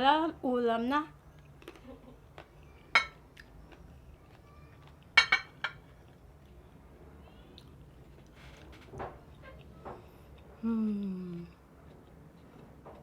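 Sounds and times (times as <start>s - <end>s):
cutlery clinking on a plate: 3.0s - 3.2s, 5.2s - 5.8s.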